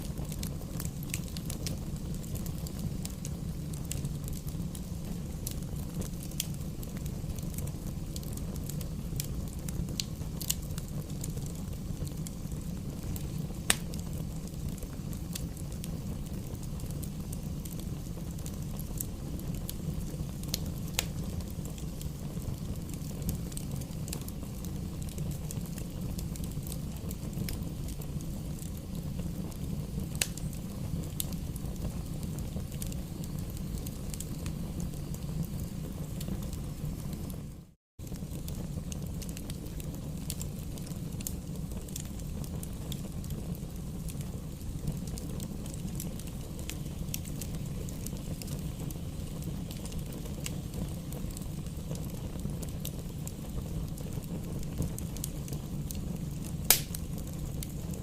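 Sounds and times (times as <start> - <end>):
bonfire crackling: 0.0 - 58.0
fire popping: 0.0 - 58.0
low fire rumble: 0.0 - 58.0.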